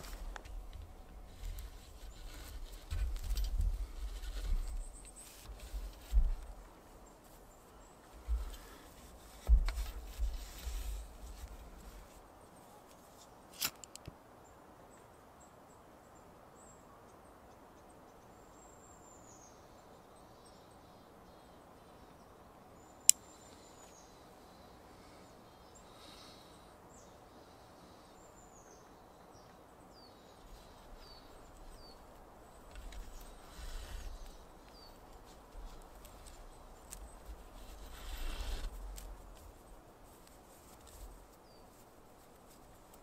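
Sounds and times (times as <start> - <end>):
handling noise: 0.0 - 6.6.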